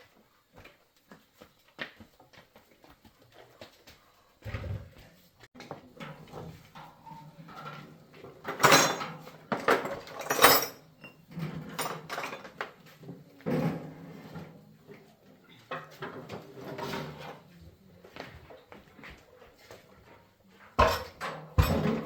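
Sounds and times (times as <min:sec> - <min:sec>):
metal parts and tools clattering: 0:08.4 - 0:12.6, 0:20.8 - 0:22.0.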